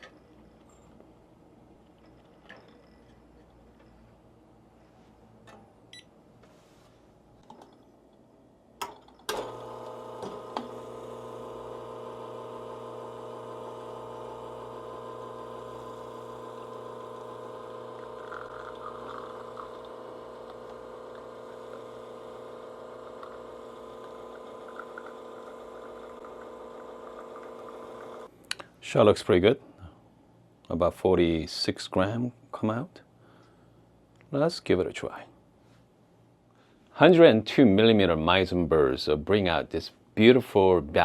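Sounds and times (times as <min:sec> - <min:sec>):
espresso machine pump humming: 0:09.3 - 0:28.3.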